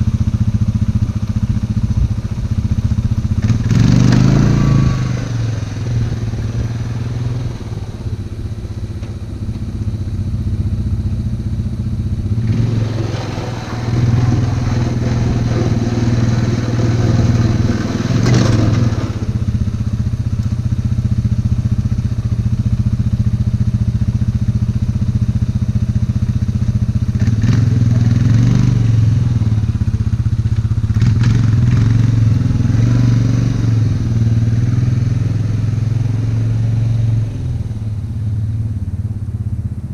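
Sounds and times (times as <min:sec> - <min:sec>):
atv engine running under load: 0:00.0 - 0:39.9
rough noisy bursts: 0:11.4 - 0:20.2.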